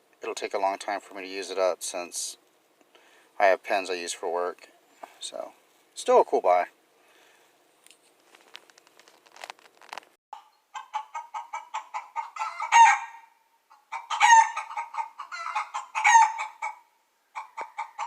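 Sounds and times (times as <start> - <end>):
chicken clucking: 10.4 - 13.0, 13.7 - 18.0
chicken drawn-out calls: 10.4 - 18.0.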